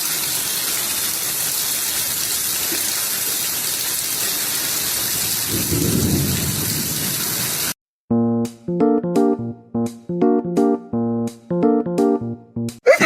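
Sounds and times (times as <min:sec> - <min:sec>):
falling water hiss: 0:00.0 - 0:07.8.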